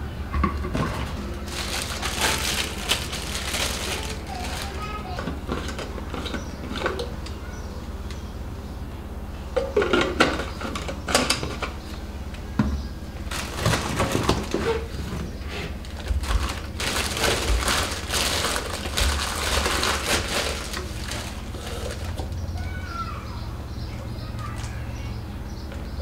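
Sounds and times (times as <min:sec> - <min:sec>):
steady low hum: 0:00.0 - 0:26.0
crinkling and rustling handling: 0:00.7 - 0:07.2, 0:13.2 - 0:22.4.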